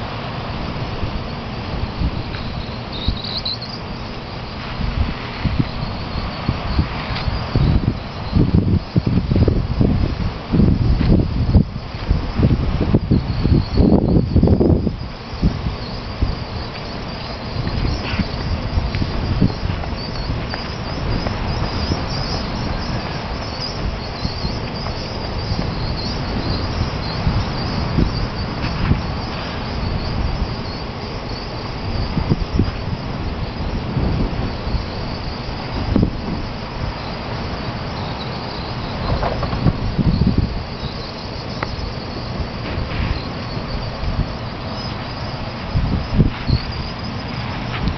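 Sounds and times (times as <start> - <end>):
small birds chirping: 2.2 - 4.4, 13.0 - 47.9
faint high chirps: 2.3 - 3.8.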